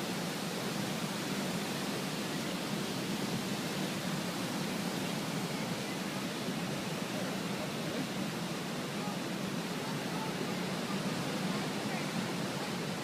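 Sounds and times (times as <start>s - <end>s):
river floodwater rushing: 0.0s - 13.0s.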